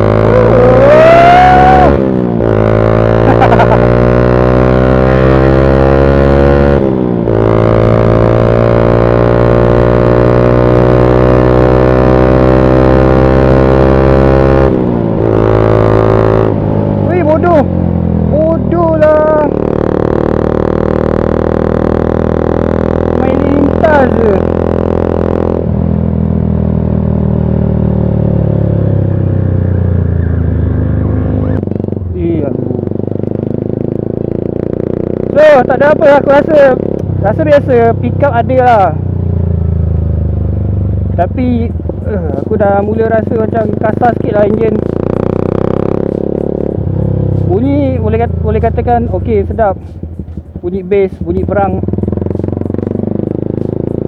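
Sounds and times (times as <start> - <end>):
motorcycle engine drone: 0.0 - 54.0.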